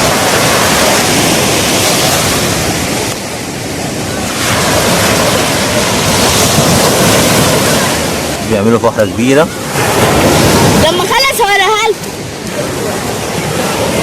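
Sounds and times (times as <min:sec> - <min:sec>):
sea surf breaking on shore: 0:00.0 - 0:14.0.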